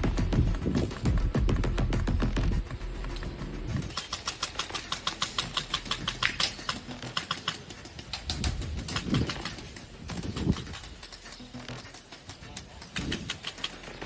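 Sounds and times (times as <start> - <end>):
airsoft guns firing in rapid bursts: 3.6 - 14.0.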